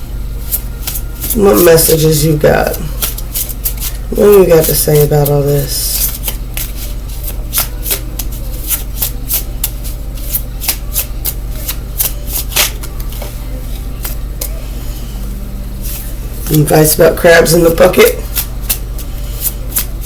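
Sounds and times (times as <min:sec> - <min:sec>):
steady low hum: 0:00.0 - 0:20.0
cards being shuffled: 0:00.5 - 0:01.7, 0:02.8 - 0:04.0, 0:04.6 - 0:13.4, 0:18.2 - 0:20.0.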